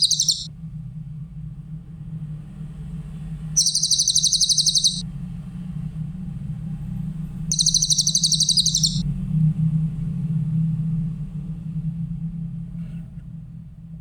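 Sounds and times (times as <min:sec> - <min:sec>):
high-pitched bird trills: 0:00.0 - 0:00.5, 0:03.6 - 0:05.0, 0:07.5 - 0:09.0
steady low hum: 0:00.0 - 0:00.5, 0:03.6 - 0:05.0, 0:07.5 - 0:09.1.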